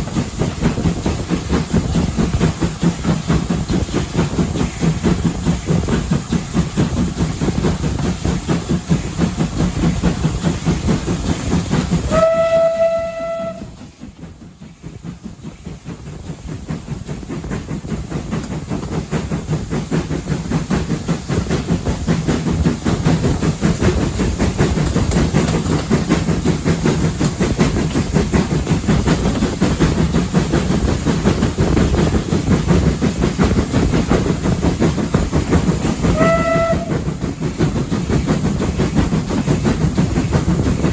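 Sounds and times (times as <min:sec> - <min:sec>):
steam train rumbling and clattering: 0:00.0 - 0:40.9
steam whistle blast: 0:12.1 - 0:13.8, 0:36.1 - 0:37.1.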